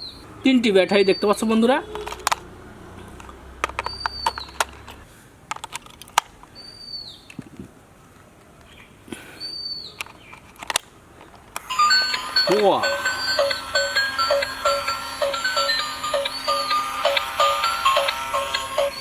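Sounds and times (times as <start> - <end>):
high falling chirp: 0.9 - 1.6, 3.8 - 4.7
plastic clicks and knocks: 3.2 - 6.3.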